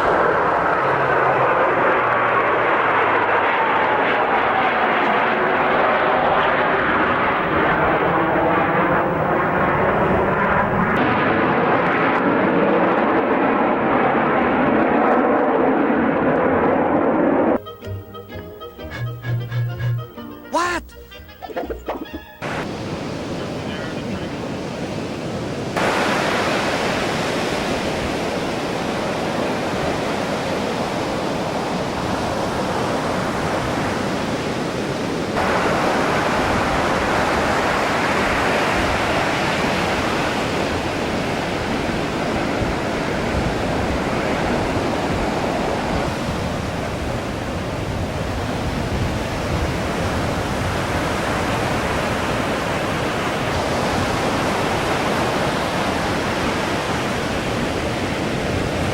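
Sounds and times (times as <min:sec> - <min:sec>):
ocean surf rushing: 0:00.0 - 0:03.6, 0:22.4 - 0:58.9
wind on microphone: 0:21.6 - 0:58.9.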